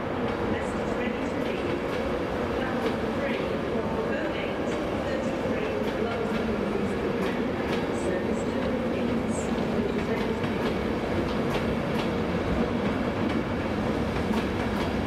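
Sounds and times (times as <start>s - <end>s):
rumble of train wheels on rails: 0.0s - 15.0s.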